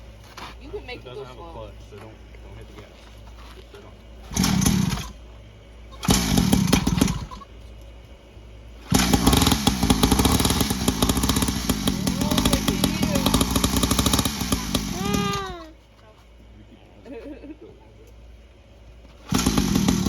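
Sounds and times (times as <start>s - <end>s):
dirt bike engine revving: 4.2s - 5.2s, 5.9s - 7.5s, 8.8s - 15.7s, 19.2s - 20.0s.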